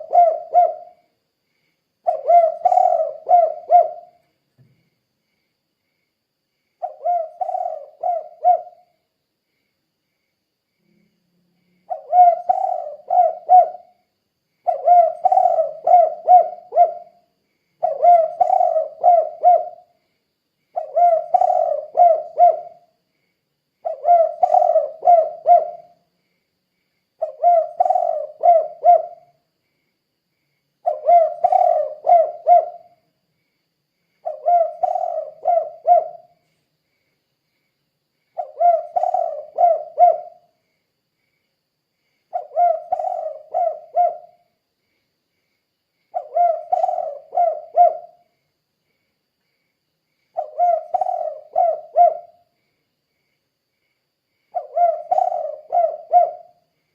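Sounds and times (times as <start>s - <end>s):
dove cooing: 0.0s - 1.1s, 2.0s - 4.2s, 6.8s - 8.9s, 11.9s - 14.0s, 14.6s - 17.2s, 17.8s - 20.0s, 20.8s - 23.0s, 23.8s - 26.0s, 27.2s - 29.3s, 30.8s - 33.0s, 34.2s - 36.4s, 38.4s - 40.5s, 42.3s - 44.4s, 46.1s - 48.2s, 50.4s - 52.5s, 54.5s - 56.6s.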